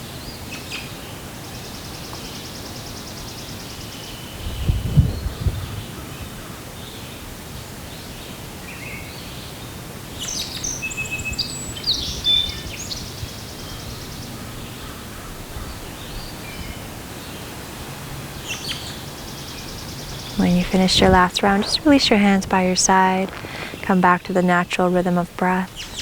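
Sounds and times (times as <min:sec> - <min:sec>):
songbirds chirping and trilling: 0:10.2 - 0:23.7
steady background hiss: 0:10.2 - 0:26.0.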